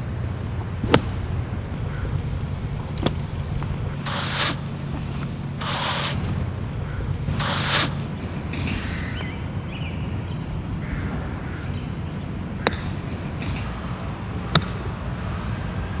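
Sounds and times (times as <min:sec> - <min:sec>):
golf club striking ball: 0:00.0 - 0:15.2
faint bird chirps: 0:06.3 - 0:14.2.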